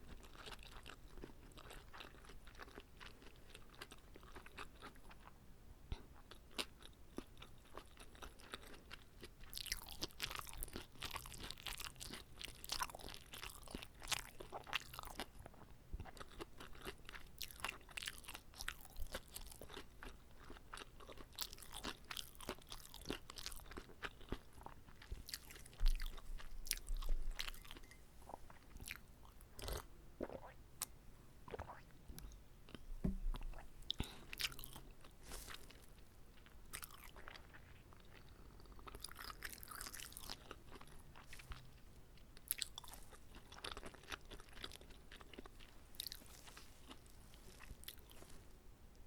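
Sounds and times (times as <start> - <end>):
person chewing and crunching: 0.0 - 30.9, 31.5 - 48.3
low thumps: 32.9 - 33.6.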